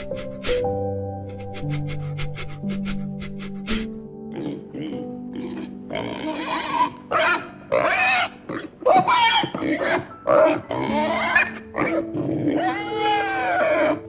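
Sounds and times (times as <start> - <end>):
background music: 0.0 - 14.0
pig squealing and grunting: 4.3 - 14.0.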